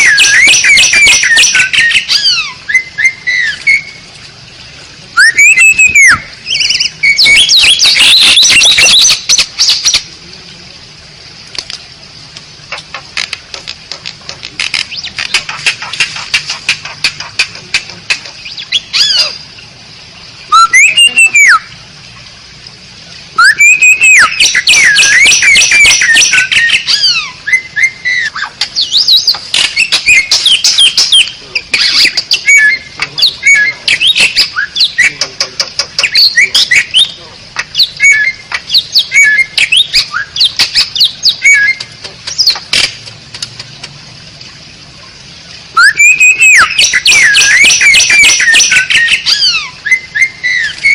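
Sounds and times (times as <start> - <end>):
starling singing: 0.0 - 4.0, 5.2 - 10.1, 20.5 - 21.7, 23.4 - 42.6, 45.8 - 50.9.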